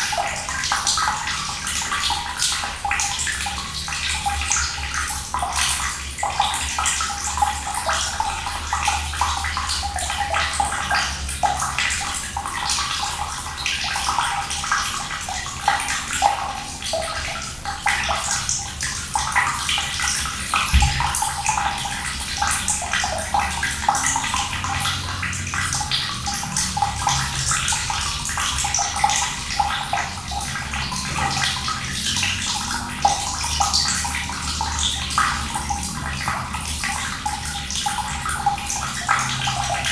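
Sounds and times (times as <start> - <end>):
water running and splashing: 0.0 - 39.9
low thud: 20.7 - 21.2.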